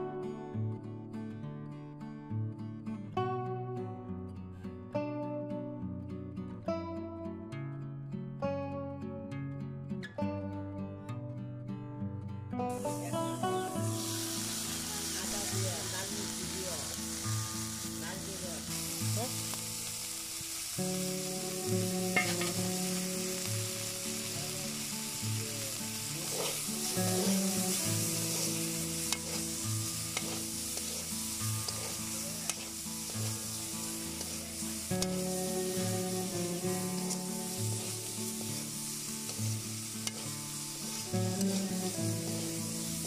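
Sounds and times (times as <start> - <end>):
beans sizzling in a wok: 12.6 - 43.0
metal spatula scraping a wok: 22.1 - 22.6, 25.7 - 42.4.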